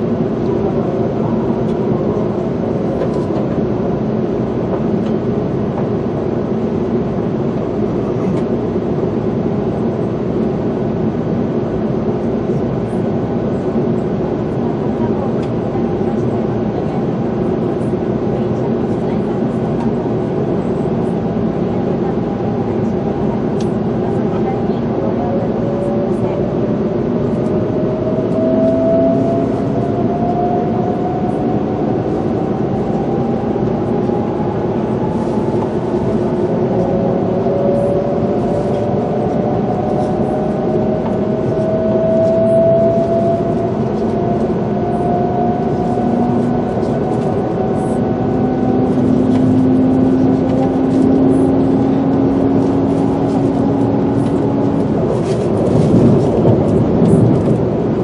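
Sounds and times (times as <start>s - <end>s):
train running noise: 0.0s - 58.0s
loud rush of air: 52.6s - 58.0s.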